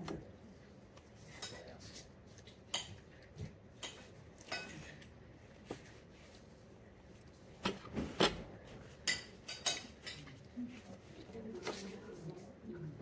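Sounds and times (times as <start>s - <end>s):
cutlery clinking on a plate: 3.8s - 5.1s, 9.0s - 10.4s.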